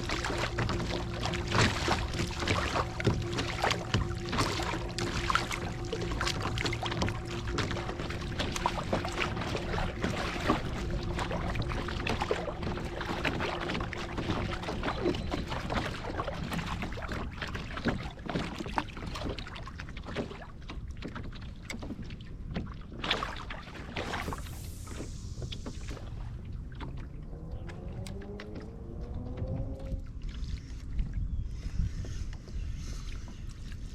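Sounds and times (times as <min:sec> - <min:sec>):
pedal drive whine: 0:00.0 - 0:17.0
loud splash: 0:00.0 - 0:17.3, 0:23.6 - 0:28.7
water splashing against hull: 0:00.0 - 0:33.9.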